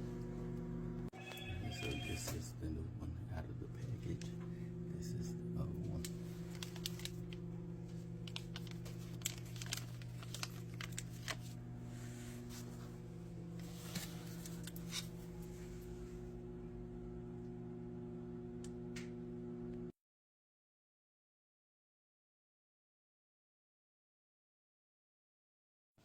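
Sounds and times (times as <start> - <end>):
low electrical hum: 0.0 - 19.9.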